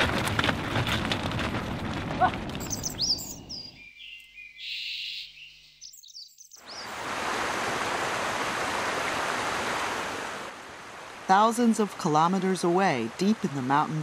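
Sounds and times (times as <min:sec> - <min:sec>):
high bird chirps: 0:02.6 - 0:07.0
rain-like hiss: 0:06.6 - 0:13.7
rushing water or wind: 0:06.6 - 0:14.0.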